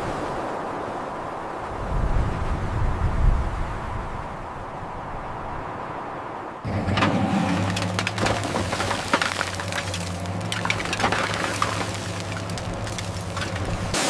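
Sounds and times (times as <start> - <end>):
irregular crackling and cracks: 6.7 - 14.0.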